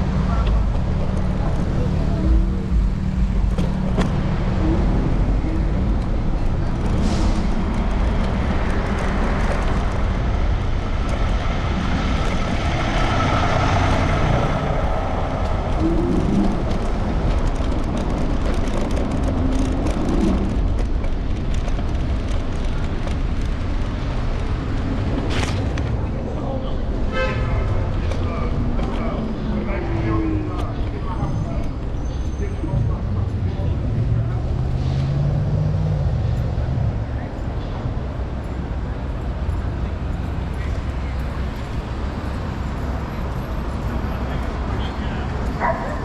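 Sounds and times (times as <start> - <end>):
vehicle passing: 0.0 - 20.8
road rumble: 0.0 - 46.0.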